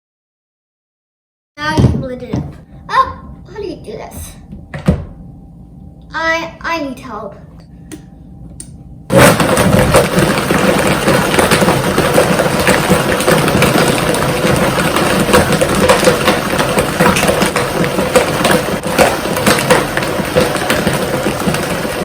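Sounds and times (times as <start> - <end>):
blender motor whine: 9.1 - 22.0.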